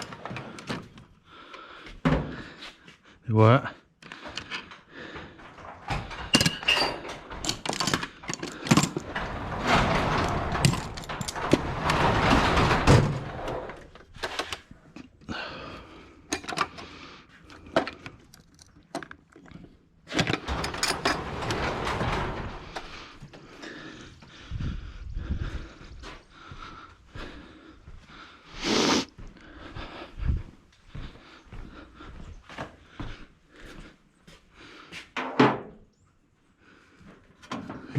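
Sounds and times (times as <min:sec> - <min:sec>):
metal tools clanking and rattling: 0:04.2 - 0:15.0, 0:16.2 - 0:17.0, 0:17.6 - 0:22.9
scraping and rustling: 0:05.4 - 0:14.9.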